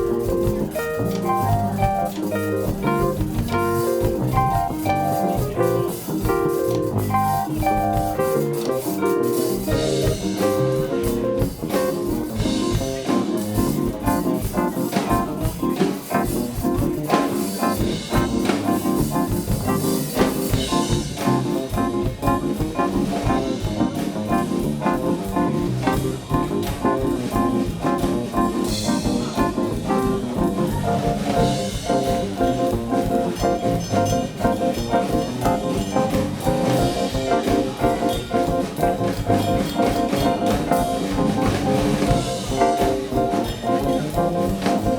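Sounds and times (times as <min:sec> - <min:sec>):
drum kit beat: 0:00.0 - 0:44.9
live band playing jazzy music: 0:00.0 - 0:44.9.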